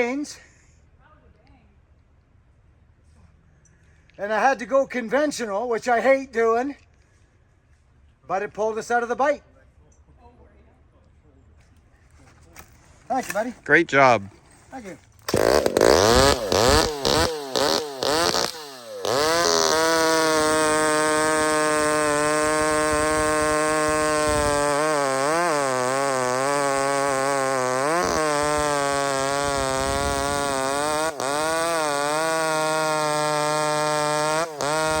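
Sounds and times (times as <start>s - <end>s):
chainsaw engine at high revs: 14.8s - 35.0s.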